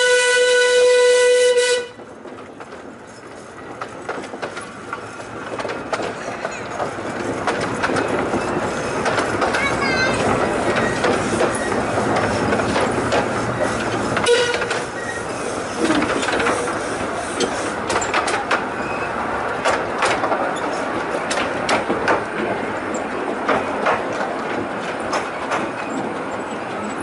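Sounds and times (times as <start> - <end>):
train wheels rolling: 0.0 - 27.0
carriages clattering over rail joints: 1.6 - 27.0.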